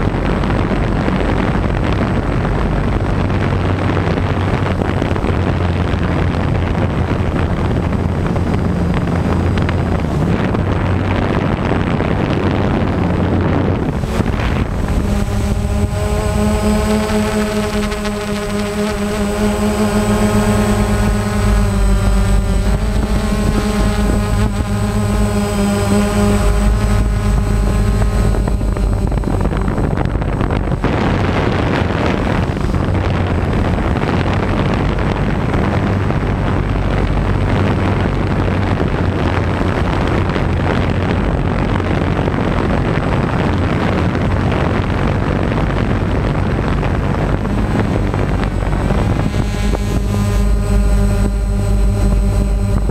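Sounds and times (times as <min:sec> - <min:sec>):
dense rushing noise: 0:00.0 - 0:52.9
engine rumbling: 0:00.0 - 0:52.9.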